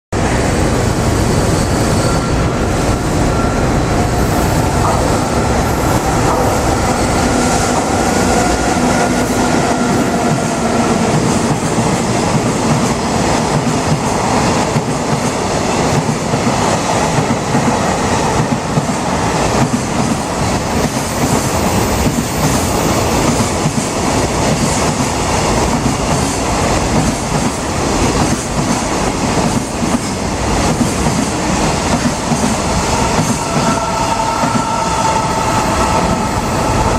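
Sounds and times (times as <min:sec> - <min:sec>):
train wagons rumbling: 0:00.2 - 0:36.9.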